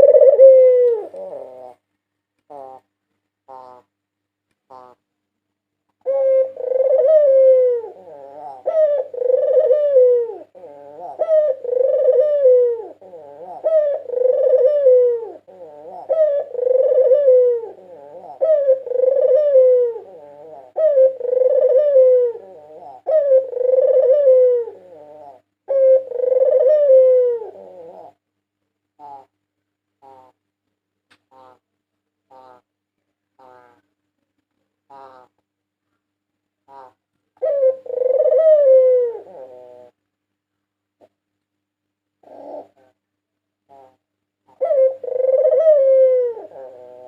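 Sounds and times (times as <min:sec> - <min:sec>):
dove cooing: 0:00.0 - 0:01.9, 0:02.5 - 0:02.9, 0:03.5 - 0:03.9, 0:06.0 - 0:28.3, 0:29.0 - 0:29.4, 0:30.0 - 0:30.4, 0:32.3 - 0:32.7, 0:33.4 - 0:33.9, 0:34.9 - 0:35.4, 0:36.6 - 0:40.0, 0:42.2 - 0:43.1, 0:43.7 - 0:47.0.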